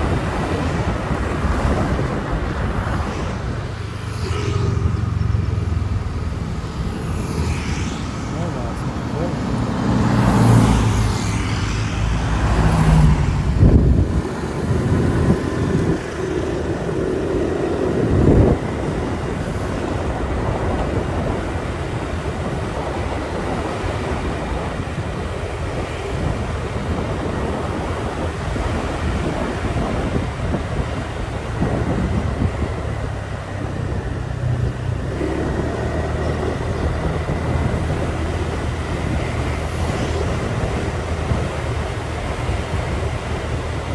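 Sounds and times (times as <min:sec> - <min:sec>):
motorbike engine drone: 0:00.0 - 0:43.9
passing traffic: 0:00.0 - 0:43.9
wind and road noise: 0:00.0 - 0:43.9.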